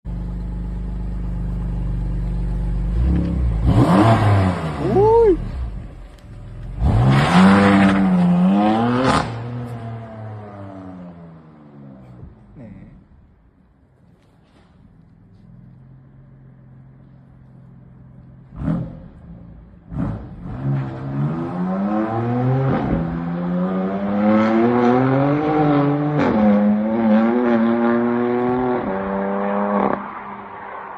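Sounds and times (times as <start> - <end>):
car engine exhaust revving: 2.3 - 5.0.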